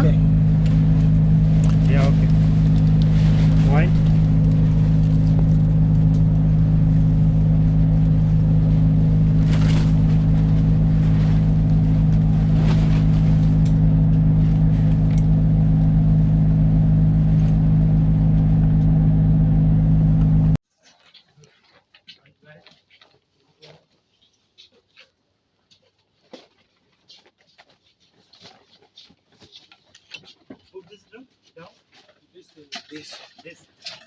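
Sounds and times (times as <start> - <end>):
large engine droning: 0.0 - 20.6.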